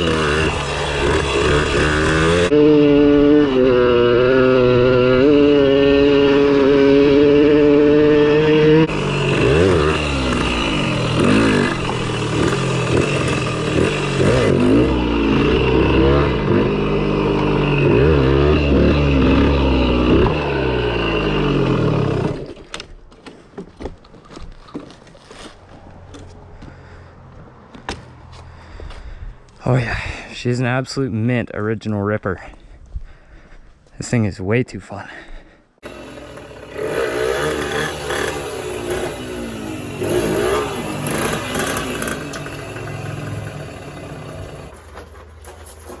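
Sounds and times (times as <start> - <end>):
dirt bike engine revving: 0.0 - 22.6, 35.8 - 44.9.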